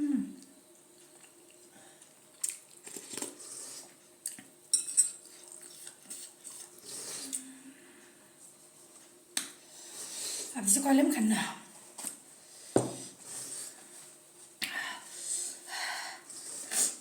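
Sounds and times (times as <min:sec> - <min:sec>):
utensils clinking against dishes: 0:04.7 - 0:05.2.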